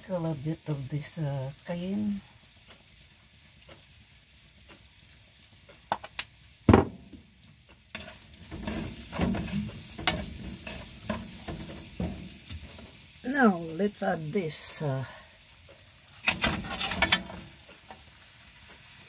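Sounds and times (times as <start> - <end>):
frying sizzle: 0.0 - 19.0
loud knock: 6.7 - 7.1
spatula scraping in wok: 7.9 - 13.0, 16.1 - 18.0.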